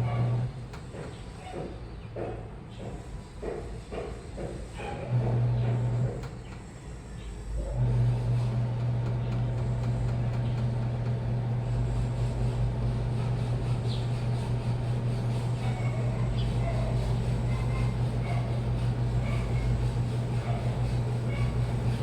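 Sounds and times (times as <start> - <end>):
washing machine motor humming: 0.0 - 0.7, 5.1 - 6.8, 7.4 - 22.0.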